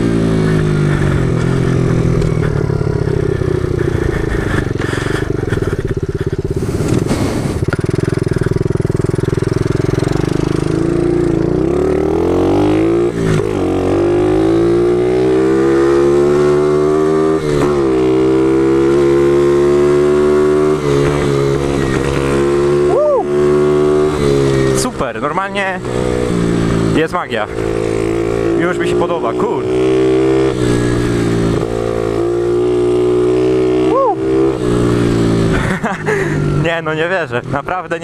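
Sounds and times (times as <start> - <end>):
pitbike engine revving: 0.0 - 36.9.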